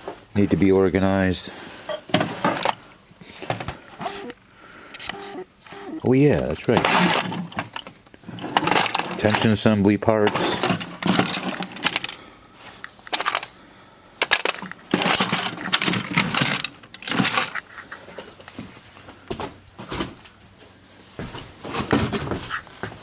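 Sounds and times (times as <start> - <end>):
small metal parts clinking: 2.0 - 3.0, 6.4 - 9.7, 10.3 - 12.2, 12.8 - 13.6, 14.2 - 18.6.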